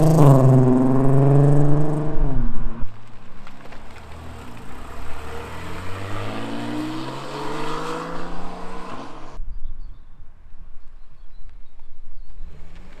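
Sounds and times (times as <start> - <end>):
car engine accelerating hard: 0.0 - 2.9, 3.9 - 9.4.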